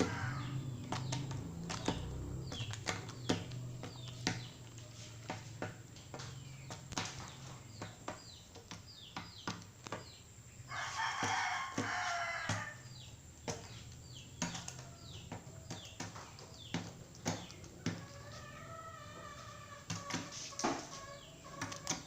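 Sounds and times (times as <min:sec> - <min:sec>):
rooster crowing: 0:00.0 - 0:01.3, 0:10.7 - 0:12.9.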